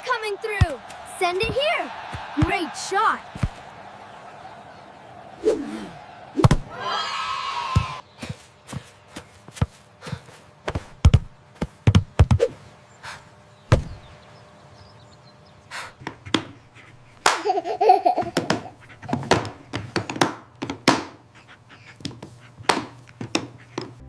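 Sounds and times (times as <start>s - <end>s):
football kicked and bouncing: 0.6s - 3.7s, 8.7s - 9.9s, 10.7s - 12.4s, 13.7s - 14.1s
burst of laughter: 17.3s - 18.8s.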